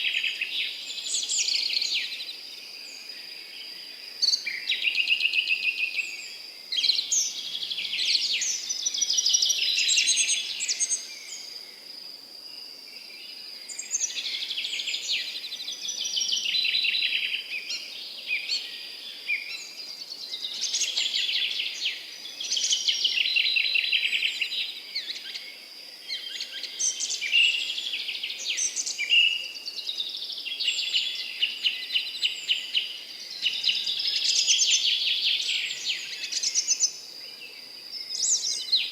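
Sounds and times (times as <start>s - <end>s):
high-pitched insect trill: 0.0s - 38.9s
songbirds singing: 0.0s - 38.9s.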